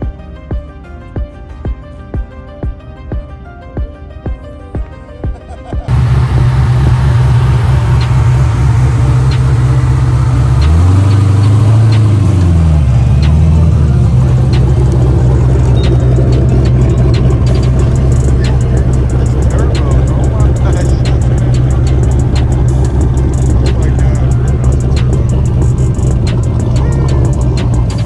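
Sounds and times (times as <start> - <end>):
car engine running: 5.9 - 28.0.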